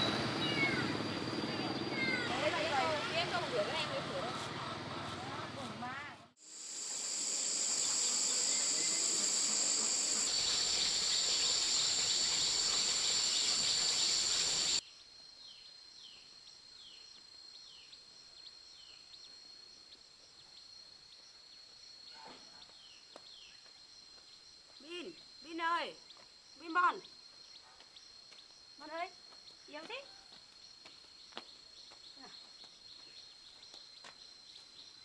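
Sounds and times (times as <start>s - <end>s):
insects shrilling drone: 0.0s - 3.2s, 6.4s - 14.8s.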